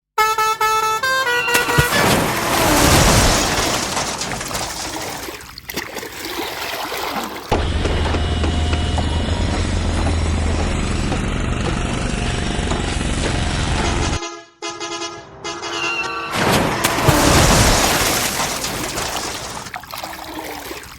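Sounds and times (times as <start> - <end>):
vehicle horn honking: 0.2 - 3.2, 13.8 - 17.4
noisy rushing: 1.6 - 4.9
low vehicle engine rumble: 7.5 - 14.2.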